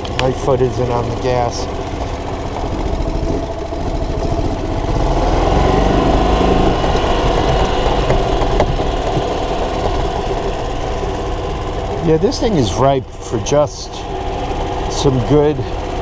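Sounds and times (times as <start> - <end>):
golf cart engine idling: 0.0 - 16.0.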